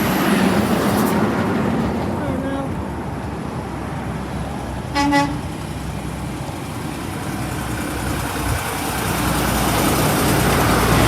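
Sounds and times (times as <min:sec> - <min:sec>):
passing road traffic: 0:00.0 - 0:11.0
truck horn toot: 0:04.9 - 0:05.5.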